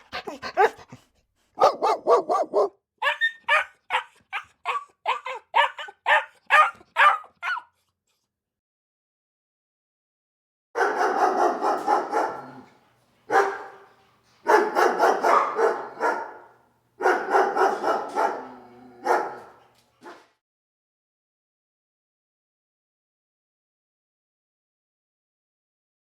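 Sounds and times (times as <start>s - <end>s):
dog barking: 0.0s - 1.0s, 1.6s - 7.8s, 10.8s - 12.7s, 13.3s - 20.4s.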